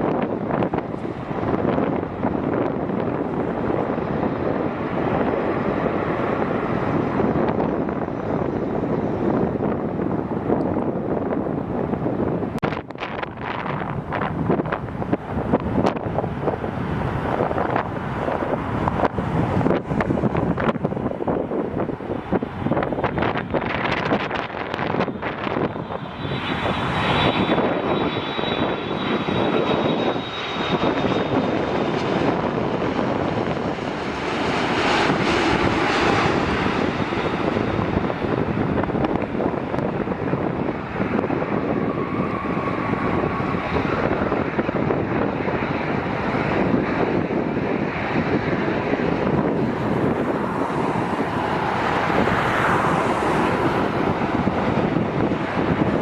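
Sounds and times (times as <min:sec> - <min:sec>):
jet engines rumbling past: 0:00.0 - 0:56.0
wind buffeting microphone: 0:00.0 - 0:56.0.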